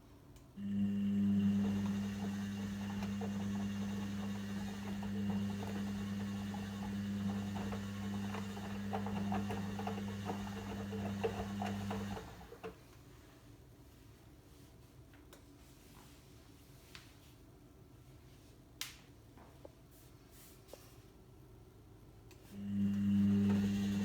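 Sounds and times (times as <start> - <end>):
washing machine motor humming: 0.6 - 12.8, 22.6 - 24.0.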